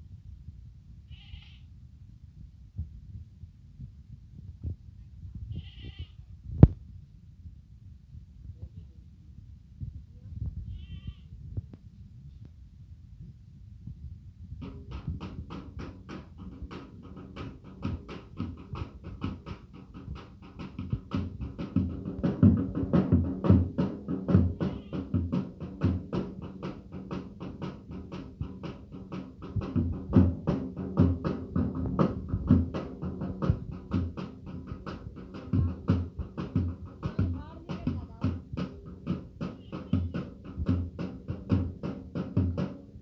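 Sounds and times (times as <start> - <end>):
rhythmic percussive music: 14.6 - 43.0.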